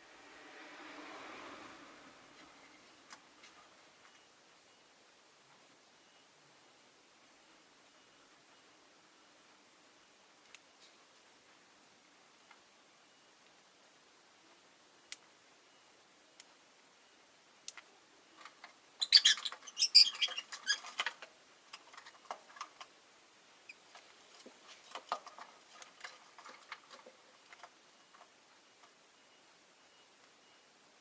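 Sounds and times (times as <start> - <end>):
lovebirds chirping: 18.0 - 21.0.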